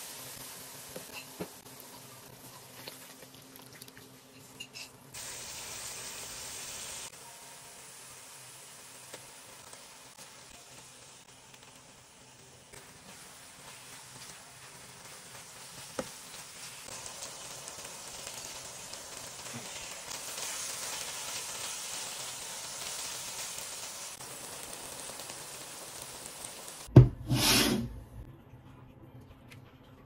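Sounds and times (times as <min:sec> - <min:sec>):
vegetables sizzling in a wok: 0:00.0 - 0:03.2, 0:04.3 - 0:28.0
sudden thump: 0:26.9 - 0:27.3.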